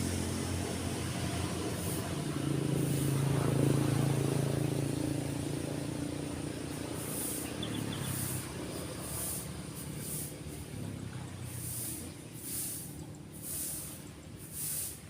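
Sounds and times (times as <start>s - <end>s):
vehicle passing: 0.0s - 15.0s
waves on beach: 0.0s - 15.0s
faint bird chirps: 7.2s - 8.4s.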